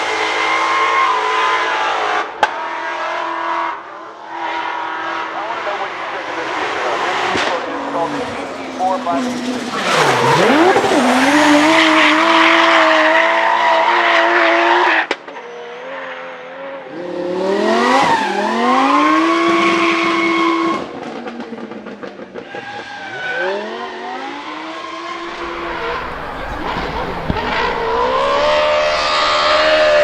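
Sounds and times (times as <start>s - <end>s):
car engine revving high: 4.7s - 14.8s, 25.2s - 30.0s
tyres squealing: 25.2s - 30.0s.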